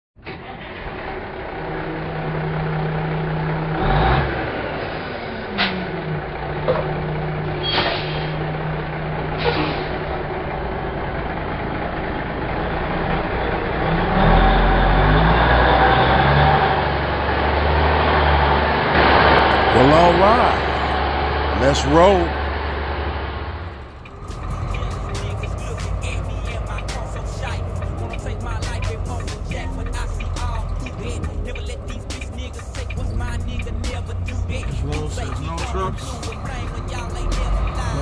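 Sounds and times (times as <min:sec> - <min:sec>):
truck engine running: 0:08.2 - 0:14.0, 0:18.8 - 0:38.0.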